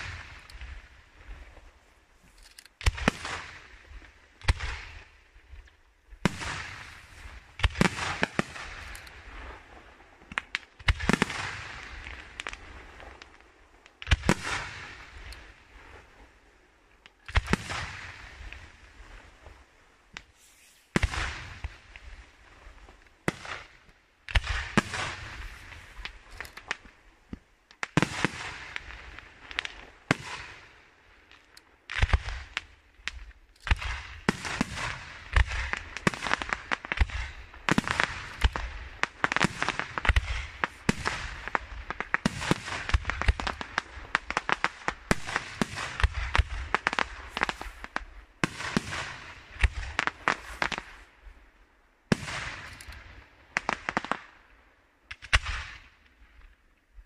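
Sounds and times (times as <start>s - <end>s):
firework shells bursting: 32.5s - 51.0s.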